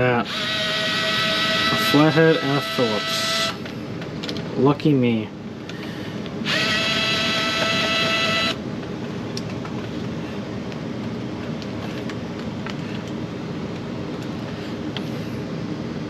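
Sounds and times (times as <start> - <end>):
cordless drill whining: 0.2 - 3.6, 6.4 - 8.6.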